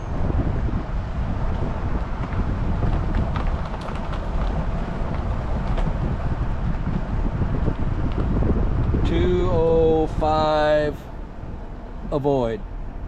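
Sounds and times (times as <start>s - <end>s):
vehicle driving slowly: 0.0s - 13.0s
wind buffeting microphone: 0.0s - 13.0s
person speaking: 9.1s - 11.0s, 12.1s - 12.6s.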